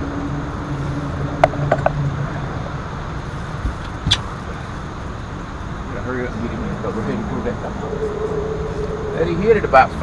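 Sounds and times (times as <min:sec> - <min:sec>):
boat motor humming: 0:00.0 - 0:10.0
sharp knocks and clicks: 0:01.4 - 0:02.0.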